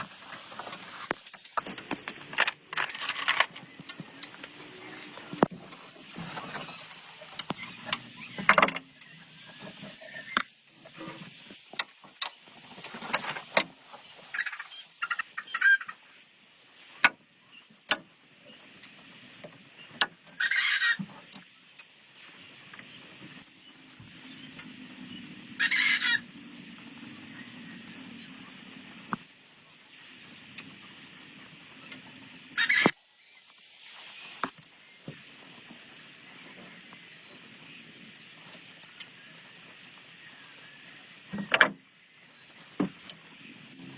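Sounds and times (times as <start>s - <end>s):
chicken squawks: 20.4s - 21.0s, 25.6s - 26.2s, 32.6s - 33.0s.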